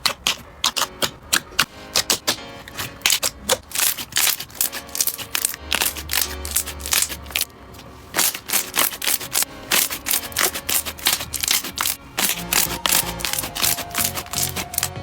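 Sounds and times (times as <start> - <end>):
slime sticky clicks and pops: 0.0 - 7.4
soft background music: 0.0 - 15.0.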